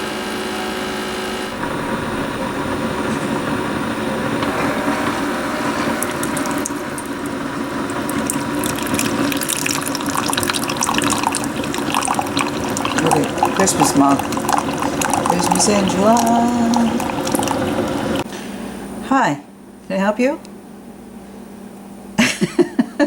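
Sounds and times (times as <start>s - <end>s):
mechanical hum: 0.0s - 23.0s
water running and splashing: 1.5s - 18.3s.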